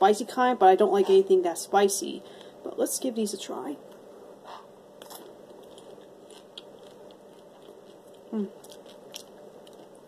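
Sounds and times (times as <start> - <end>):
mouth-closed chewing: 5.0 - 10.0.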